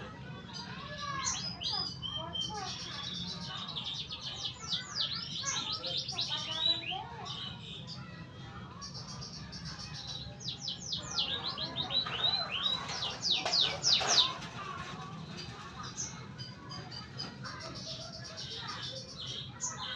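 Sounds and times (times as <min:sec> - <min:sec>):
canary singing: 0:09.1 - 0:19.9.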